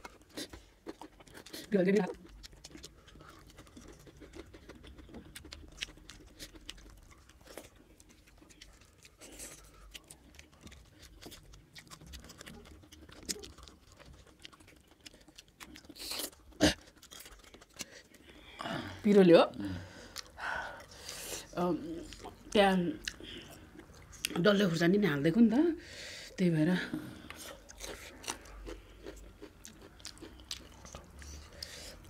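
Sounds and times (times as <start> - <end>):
chewing with wet clicks: 0.0 - 18.6, 20.0 - 21.2, 21.8 - 24.6, 27.2 - 32.0.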